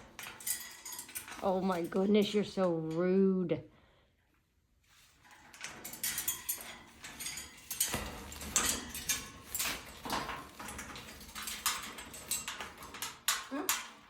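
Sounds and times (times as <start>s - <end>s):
parrot claws clicking on cage bars: 5.3s - 14.0s.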